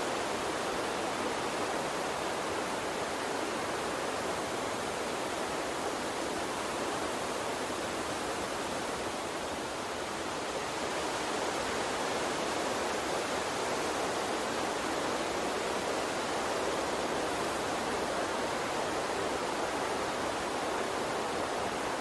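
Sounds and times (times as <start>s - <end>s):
small stream flowing: 0.0s - 22.0s.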